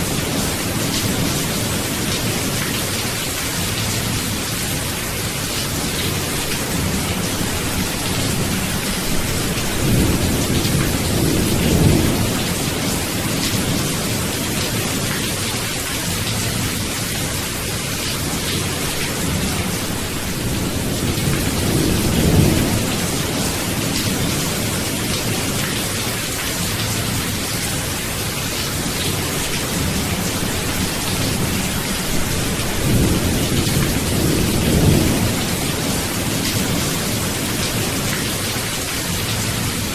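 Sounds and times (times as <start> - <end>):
heavy rain hissing: 0.0 - 39.9
low rolling thunder: 6.0 - 15.2, 18.2 - 25.8, 29.0 - 38.2.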